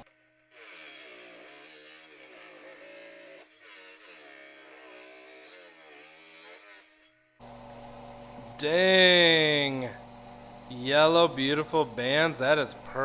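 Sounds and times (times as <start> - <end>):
electric saw cutting rock: 0.0 - 13.0
steady hum: 7.4 - 13.0.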